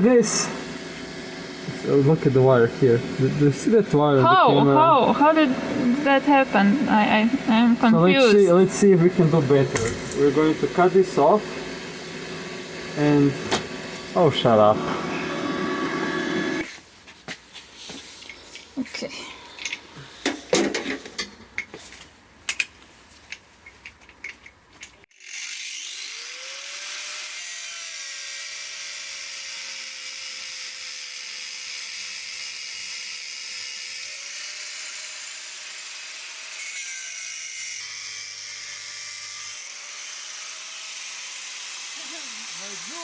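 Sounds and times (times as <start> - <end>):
angle grinder cutting steel: 0.0 - 16.8, 25.1 - 43.0
handling clicks and knocks: 9.8 - 10.3.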